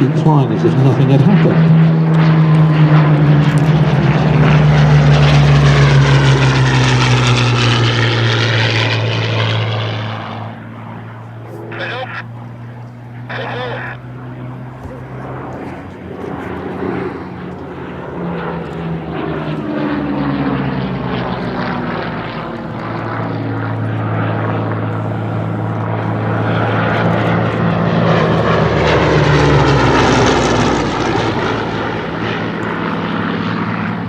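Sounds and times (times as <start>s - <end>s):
propeller aircraft engine drone: 0.0s - 34.0s.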